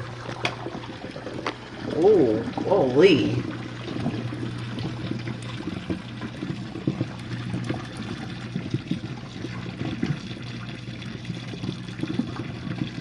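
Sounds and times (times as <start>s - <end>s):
wash pump hum: 0.0s - 13.0s
water spraying inside dishwasher: 1.9s - 10.3s.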